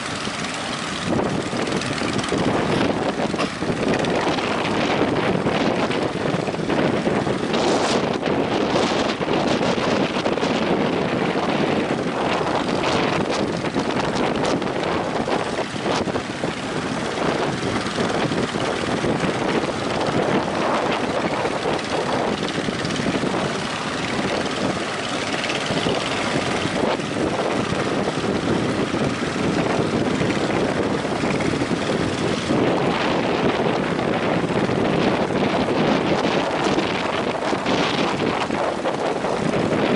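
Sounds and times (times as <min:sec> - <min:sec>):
rough surf: 0:00.0 - 0:39.9
wind buffeting microphone: 0:00.0 - 0:39.9.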